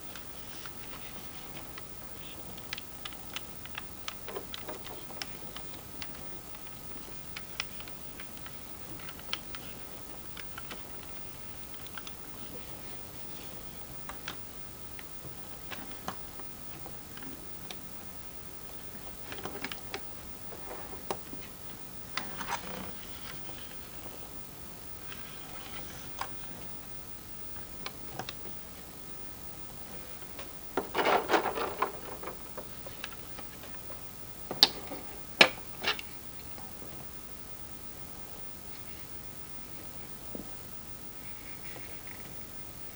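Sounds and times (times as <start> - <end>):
rustling: 0.0 - 37.1
steady low hiss: 0.0 - 42.9
hard plastic parts clicking: 30.3 - 33.8, 34.5 - 36.1.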